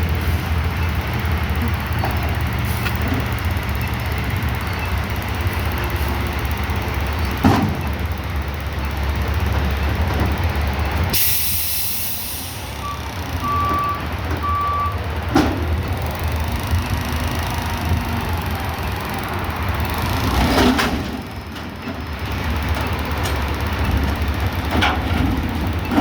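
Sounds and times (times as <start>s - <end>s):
diesel truck engine running: 0.0s - 26.0s
air brake hiss: 11.2s - 12.8s
reversing alarm beeps: 12.8s - 15.0s.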